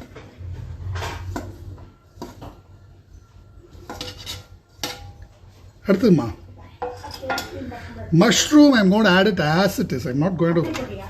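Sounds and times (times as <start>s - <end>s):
kitchen utensils clattering: 0.0s - 2.6s, 3.7s - 5.6s, 6.8s - 8.6s, 10.5s - 11.0s.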